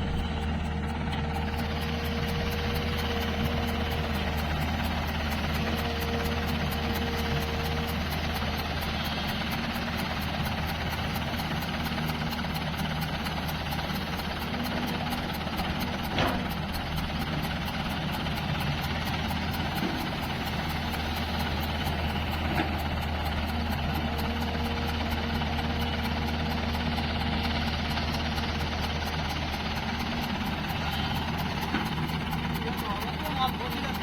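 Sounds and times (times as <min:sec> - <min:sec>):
diesel engine humming: 0:00.0 - 0:34.0.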